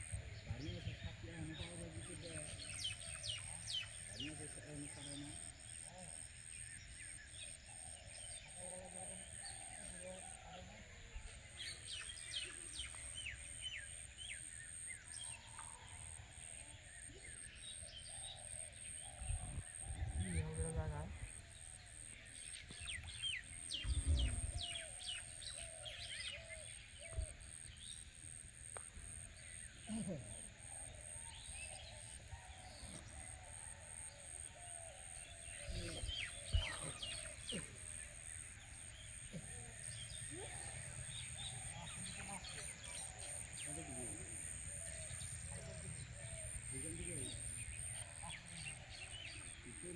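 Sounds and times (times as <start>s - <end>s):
birds chirping: 0.0s - 49.9s
small birds chirping: 35.2s - 49.9s.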